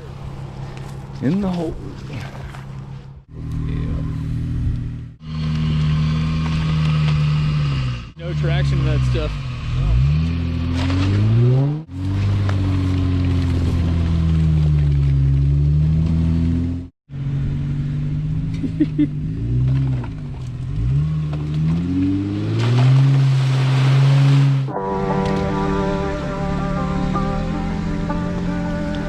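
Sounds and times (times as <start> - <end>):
engine revving in mud: 3.3 - 16.9, 18.0 - 24.7.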